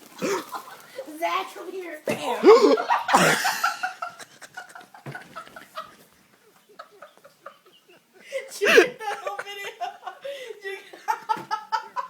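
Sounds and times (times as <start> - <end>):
person laughing: 2.4 - 6.0, 6.8 - 12.0.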